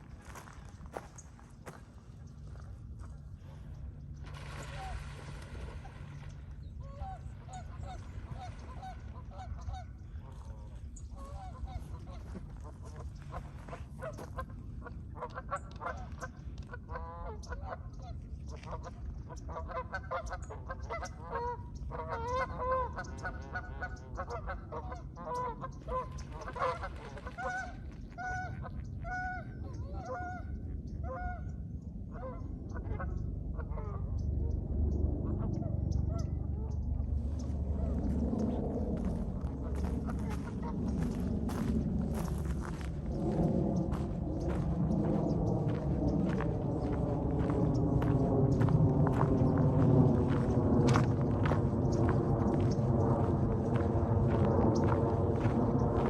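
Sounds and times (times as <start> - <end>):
waterfowl honking: 4.5 - 10.6, 11.2 - 14.4, 19.5 - 31.6.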